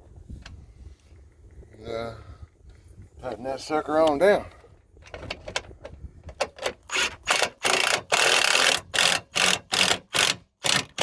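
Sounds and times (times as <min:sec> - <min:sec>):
ratchet wrench clicking: 0:06.9 - 0:11.0.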